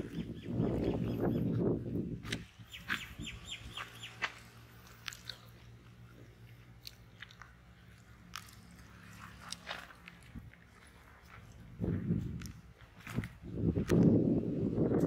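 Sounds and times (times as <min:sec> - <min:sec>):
bird chirping: 0:00.0 - 0:01.7, 0:02.5 - 0:04.5
steady low hum: 0:00.0 - 0:15.0.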